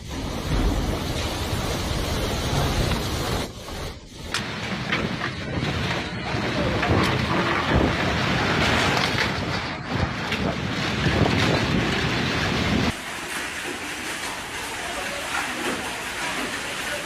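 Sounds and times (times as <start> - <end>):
rain-like hiss: 0.0 - 5.0, 12.6 - 17.0
storm wind buffeting microphone: 0.0 - 13.0.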